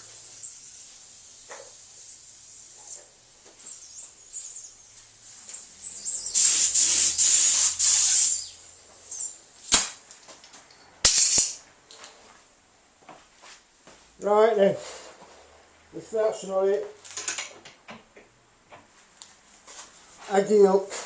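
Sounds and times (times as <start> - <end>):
paint spray hiss: 0.0 - 9.8.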